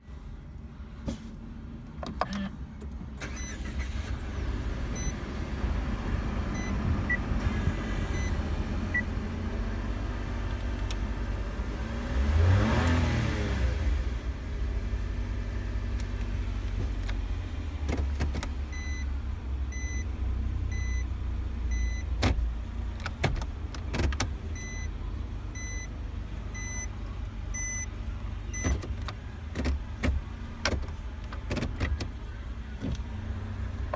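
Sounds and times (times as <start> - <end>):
car engine idling: 2.7 - 12.6, 14.0 - 33.9
engine revving: 11.2 - 14.3.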